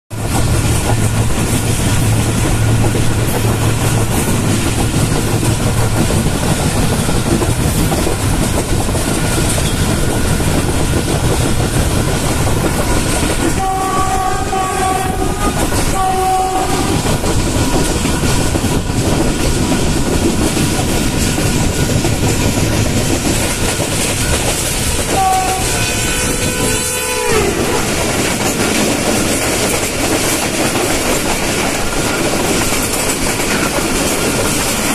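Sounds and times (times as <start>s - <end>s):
train rumbling on track: 0.1s - 34.9s
passing train horn: 12.9s - 17.2s, 25.0s - 28.0s
train horn blasts: 13.4s - 17.2s, 25.0s - 28.0s.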